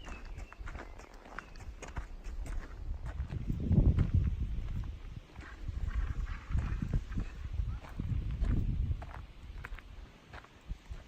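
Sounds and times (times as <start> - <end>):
footsteps on a trail: 0.0 - 11.0
low rumble on microphone: 2.0 - 10.0.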